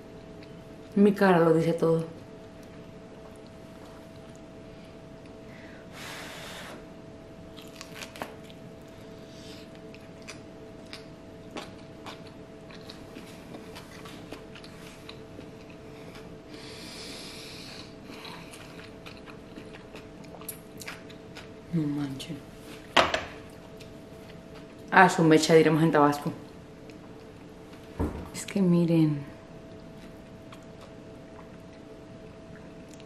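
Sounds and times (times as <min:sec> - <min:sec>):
faint hum: 0:00.0 - 0:33.0
person chewing: 0:07.6 - 0:08.9, 0:09.7 - 0:16.4, 0:17.8 - 0:21.6, 0:29.7 - 0:31.9.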